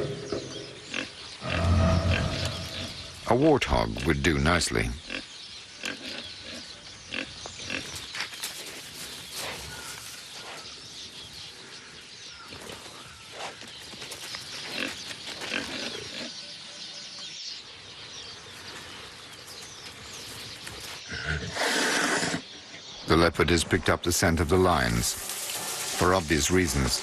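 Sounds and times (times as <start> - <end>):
warthog grunting: 1.4 - 3.2.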